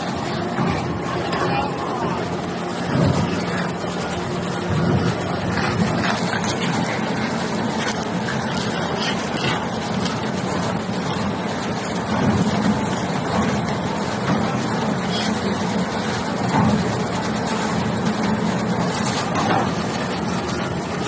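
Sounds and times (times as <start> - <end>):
wood shredder running: 0.0 - 21.0.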